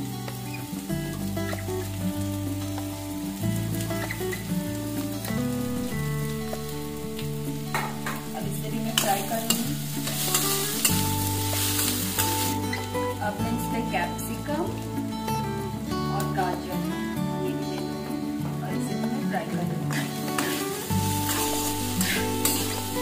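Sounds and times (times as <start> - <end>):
onions and potatoes sizzling in oil: 0.0 - 23.0
steel spatula scraping and stirring: 7.6 - 12.7, 19.9 - 23.0.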